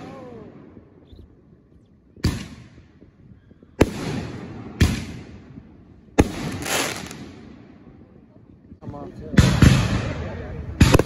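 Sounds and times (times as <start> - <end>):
fireworks bangs: 2.2 - 7.9, 9.3 - 11.0.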